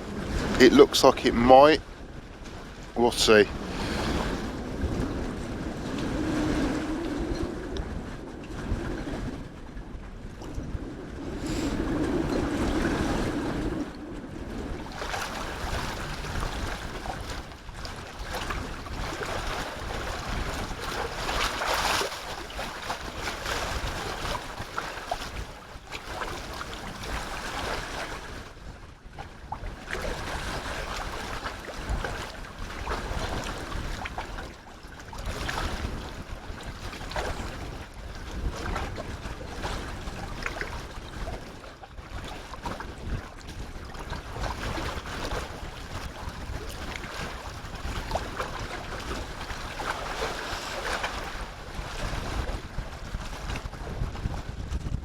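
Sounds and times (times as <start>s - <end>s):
sea water washing: 0.0s - 28.4s, 42.5s - 53.8s
wind buffeting microphone: 0.0s - 55.0s.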